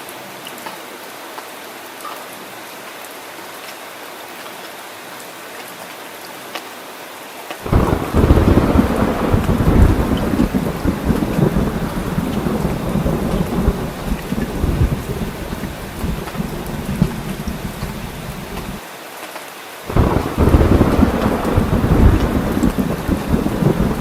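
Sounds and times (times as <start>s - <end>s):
steady rain hiss: 0.0s - 24.0s
loud thunder rumble: 7.6s - 18.8s, 19.9s - 24.0s
water drips clicking: 7.7s - 18.8s, 19.9s - 24.0s.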